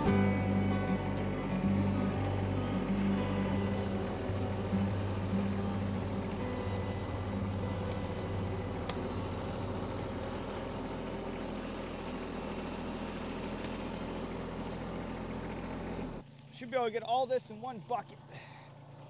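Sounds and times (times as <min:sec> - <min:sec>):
tractor diesel engine idling: 0:00.0 - 0:19.0.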